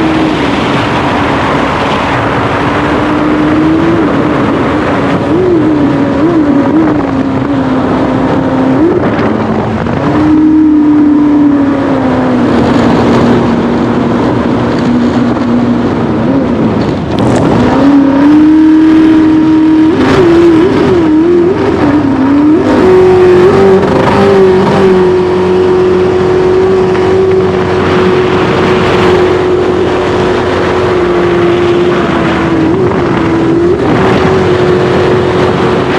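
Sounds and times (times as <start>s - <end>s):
jet boat engine at high revs: 0.0s - 35.9s.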